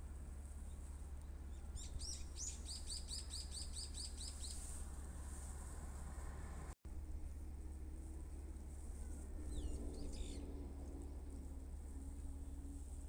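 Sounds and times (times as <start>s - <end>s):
steady low hum: 0.0s - 13.0s
small bird chirping rapidly: 1.5s - 4.7s.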